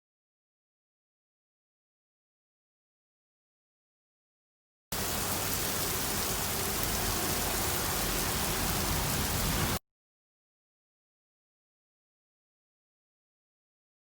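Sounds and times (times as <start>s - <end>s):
steady rain falling: 5.0s - 9.8s.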